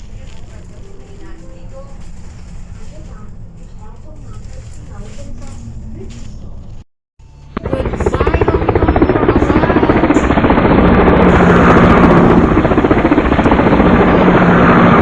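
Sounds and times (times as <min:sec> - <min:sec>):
helicopter rotor chopping: 0:07.2 - 0:15.0.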